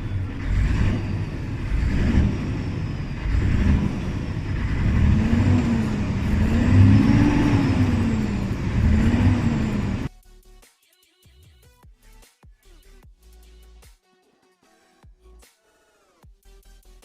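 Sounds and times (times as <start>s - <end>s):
truck engine revving unevenly: 0.0s - 10.1s.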